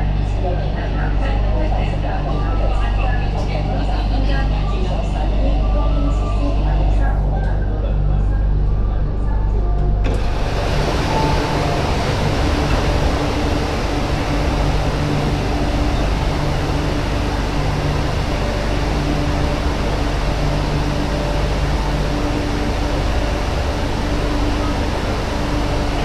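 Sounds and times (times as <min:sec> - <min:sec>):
low electric hum: 0:00.0 - 0:26.0
train rolling noise: 0:10.0 - 0:26.0.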